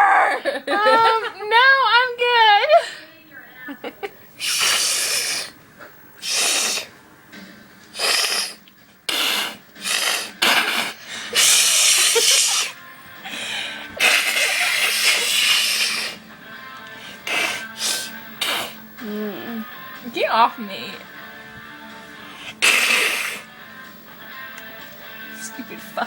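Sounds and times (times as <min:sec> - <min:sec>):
person hissing: 0:04.4 - 0:05.6, 0:06.2 - 0:06.9, 0:07.9 - 0:12.8, 0:13.4 - 0:16.3, 0:17.0 - 0:18.9, 0:22.2 - 0:23.5.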